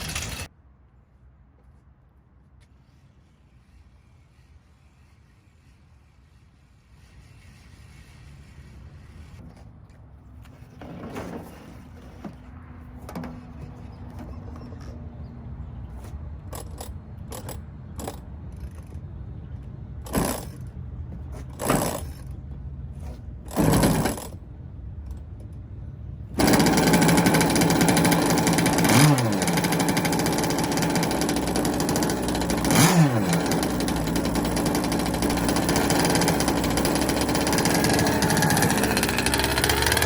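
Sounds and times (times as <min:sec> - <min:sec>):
small engine cranking: 0:00.0 - 0:00.5, 0:23.5 - 0:24.4, 0:26.4 - 0:40.0
two-stroke engine buzzing: 0:00.0 - 0:00.5, 0:26.4 - 0:40.0.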